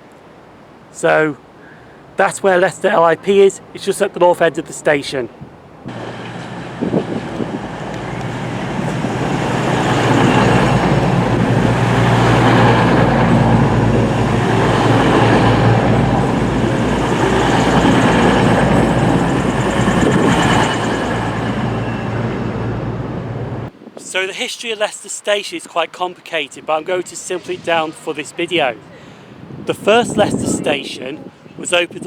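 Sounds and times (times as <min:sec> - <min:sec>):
rail rumble: 0:05.4 - 0:23.7
diesel train engine: 0:05.6 - 0:23.7.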